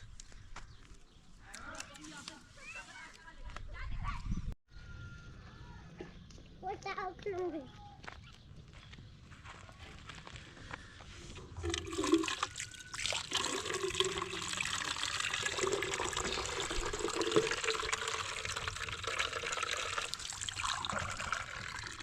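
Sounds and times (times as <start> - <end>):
water pouring and splashing: 11.5 - 22.0.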